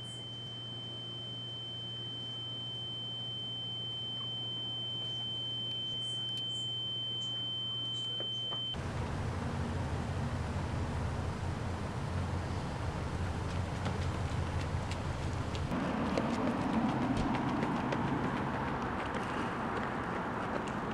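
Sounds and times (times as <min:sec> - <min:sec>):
high-pitched electronic tone: 0:00.0 - 0:08.8
low hum: 0:00.0 - 0:20.8.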